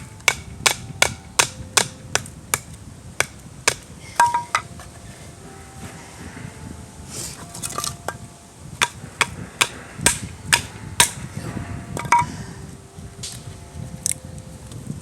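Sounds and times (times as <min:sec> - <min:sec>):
small knocks: 0:00.0 - 0:05.0
sharp striking blows: 0:00.0 - 0:13.7.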